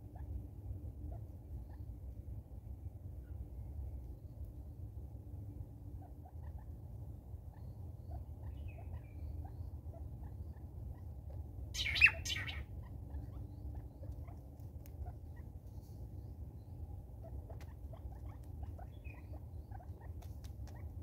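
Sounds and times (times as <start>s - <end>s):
steady low hum: 0.0s - 21.0s
sharp bird call: 11.8s - 12.6s.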